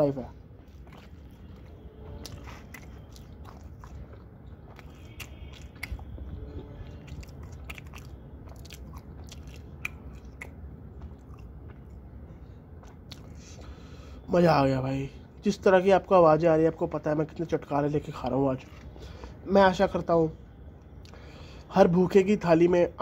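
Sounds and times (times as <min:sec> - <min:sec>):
person chewing food: 0:00.0 - 0:14.3, 0:18.6 - 0:19.4
wet clicks and lip-smacks: 0:00.6 - 0:13.8.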